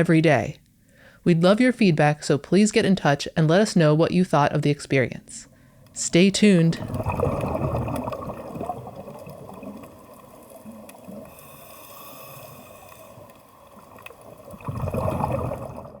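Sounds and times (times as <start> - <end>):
gurgling water: 6.7 - 16.0.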